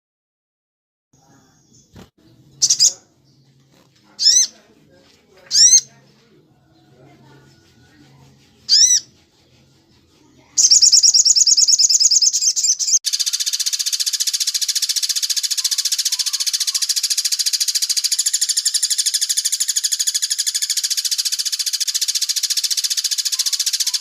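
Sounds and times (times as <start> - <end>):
sharp bird chirp: 2.6 - 3.0, 10.6 - 24.0
rapid chattering bird trill: 2.6 - 3.1, 4.2 - 4.6, 5.5 - 5.9, 8.4 - 24.0
fast high bird trill: 8.7 - 9.1, 10.6 - 24.0.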